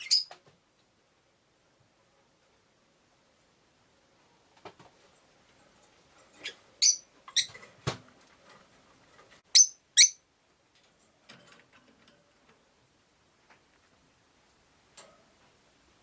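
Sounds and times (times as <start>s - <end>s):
shrill bird chirps: 0.0s - 0.4s, 6.4s - 7.5s, 9.5s - 10.2s.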